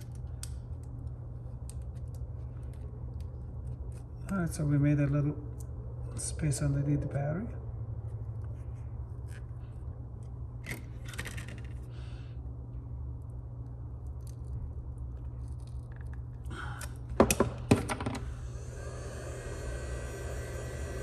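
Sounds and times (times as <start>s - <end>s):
steady hiss: 18.3s - 21.0s.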